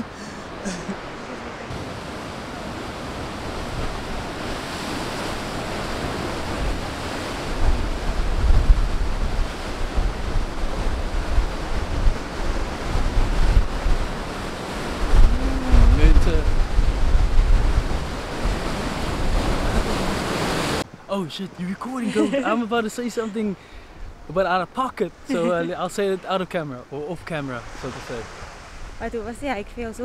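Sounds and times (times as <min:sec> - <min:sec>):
wind buffeting microphone: 0:00.0 - 0:20.8
ocean surf: 0:00.0 - 0:30.0.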